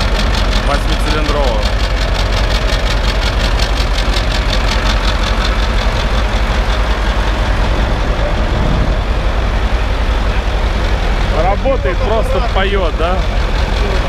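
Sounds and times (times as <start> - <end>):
rapid even clatter: 0.0 - 10.1
diesel engine idling: 0.0 - 14.0.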